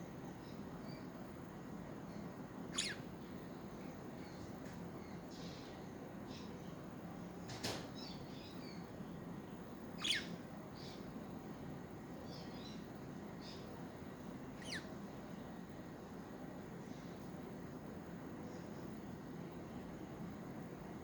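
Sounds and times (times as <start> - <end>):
budgerigars chirping: 2.7 - 3.0, 10.0 - 11.1, 14.6 - 14.9.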